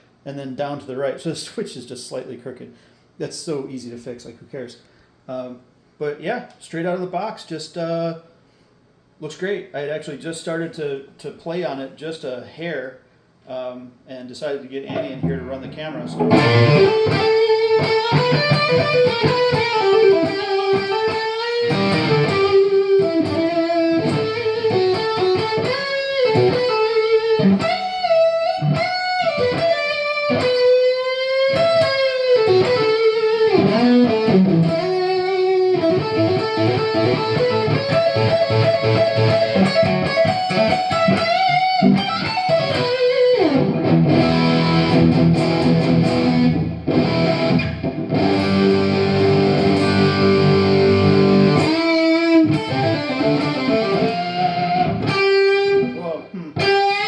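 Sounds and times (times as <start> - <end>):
electric guitar through an amp: 14.9 - 57.0.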